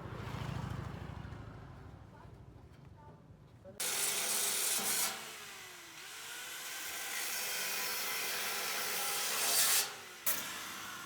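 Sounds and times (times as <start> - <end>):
power tool grinding metal: 3.8 - 11.0.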